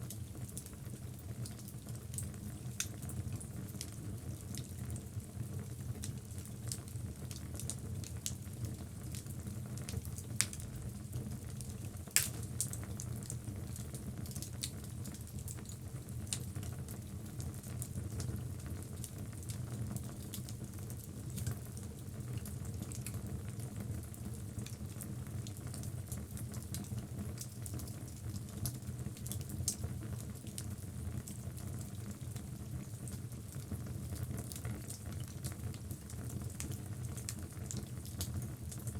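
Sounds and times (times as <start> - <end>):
wood crackling and snapping: 12.2 - 12.4.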